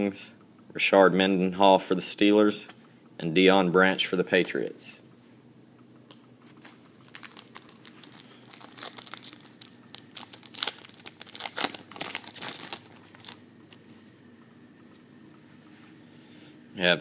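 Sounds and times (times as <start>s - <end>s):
wrapper tearing and crinkling: 7.0s - 13.4s.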